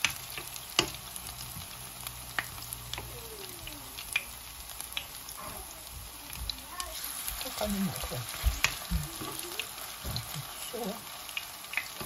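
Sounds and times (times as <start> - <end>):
fritters sizzling in hot oil: 0.0 - 12.0.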